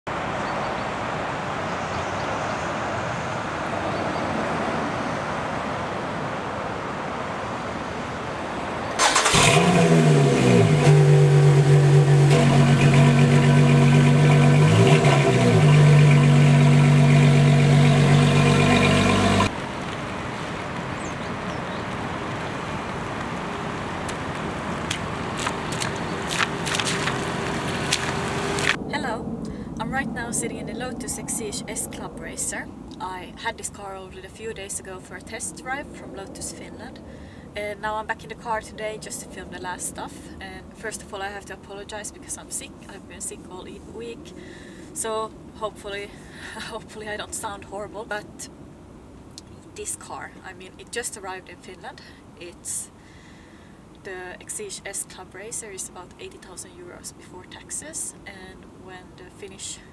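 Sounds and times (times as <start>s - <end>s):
car engine starting and idling: 8.9s - 29.0s.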